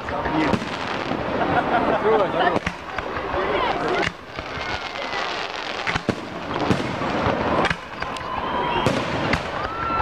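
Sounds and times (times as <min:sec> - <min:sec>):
continuous background noise: 0:00.0 - 0:10.0
firework shells bursting: 0:02.5 - 0:09.9.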